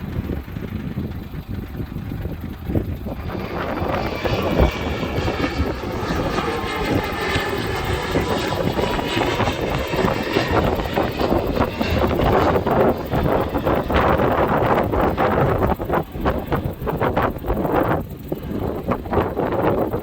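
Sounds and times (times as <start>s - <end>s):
jet engines at high thrust: 0.0s - 20.0s
wind buffeting microphone: 0.0s - 20.0s.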